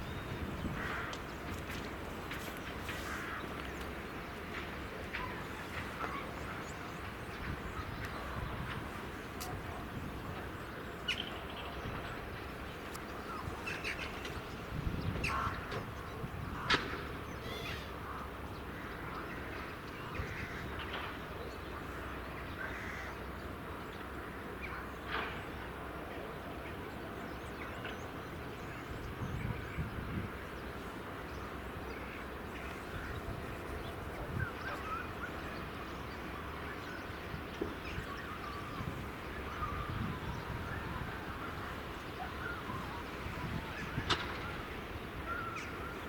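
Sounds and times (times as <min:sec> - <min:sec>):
birds calling: 0:00.0 - 0:46.0.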